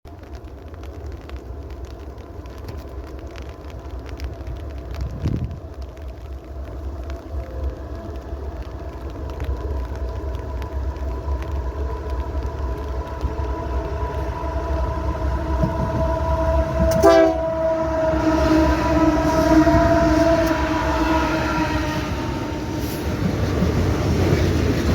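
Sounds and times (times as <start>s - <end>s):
diesel locomotive approaching: 0.2s - 24.9s
sustained train tones: 6.6s - 24.9s.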